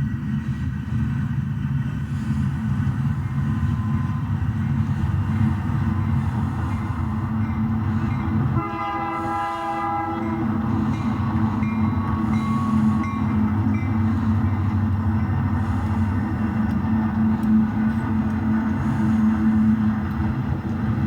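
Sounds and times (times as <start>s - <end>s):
locomotive horn blast: 8.4s - 11.2s.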